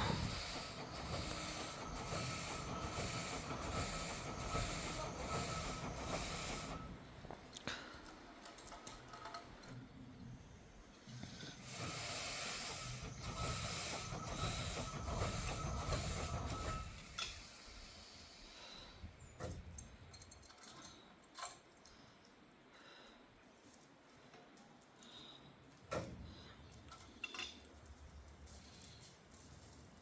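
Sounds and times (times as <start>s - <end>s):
thin steady squeal: 0.0s - 7.2s, 11.1s - 19.5s
train rumbling past: 0.0s - 7.4s, 10.4s - 19.0s.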